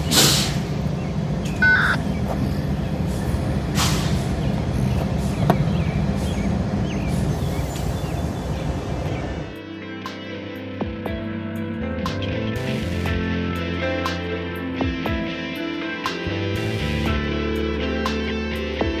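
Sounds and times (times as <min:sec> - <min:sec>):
air hiss: 0:00.0 - 0:00.8, 0:03.1 - 0:04.5
diesel locomotive rumbling: 0:00.0 - 0:09.6
short beep: 0:01.6 - 0:02.0.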